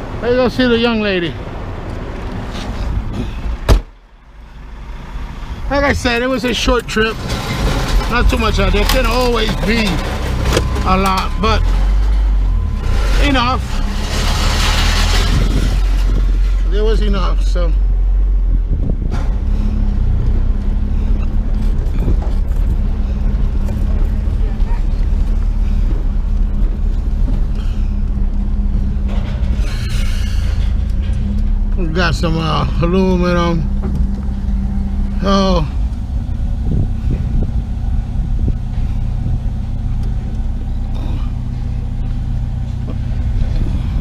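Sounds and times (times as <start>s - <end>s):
truck engine and road rumble: 0.0s - 44.0s.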